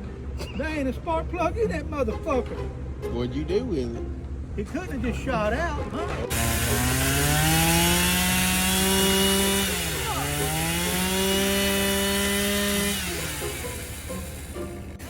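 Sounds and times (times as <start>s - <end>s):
chainsaw engine revving: 6.3s - 15.0s.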